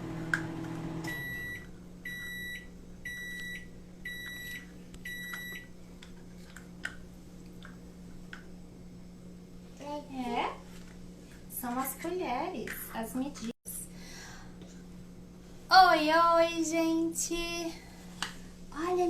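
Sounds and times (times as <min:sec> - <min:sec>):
microwave oven humming: 0:00.0 - 0:10.0
microwave electronic beeps: 0:01.0 - 0:05.7.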